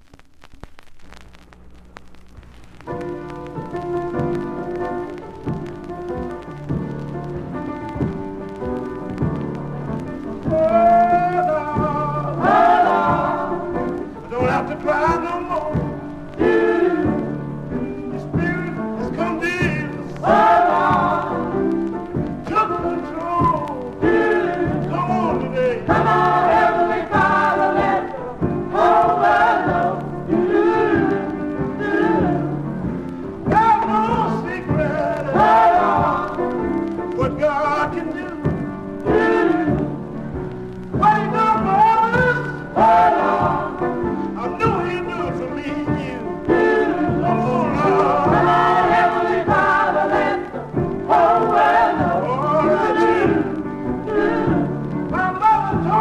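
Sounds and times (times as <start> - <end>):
band accompaniment with beat: 0.7 - 56.0
gospel choir singing: 9.3 - 56.0.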